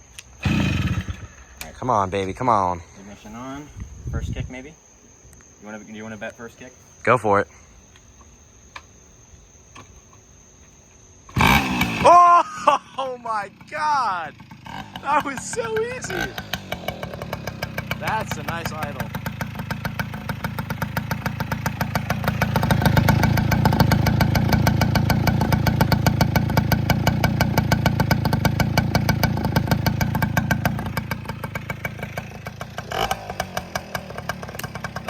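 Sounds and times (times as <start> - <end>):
moped engine idling: 12.0 - 35.0.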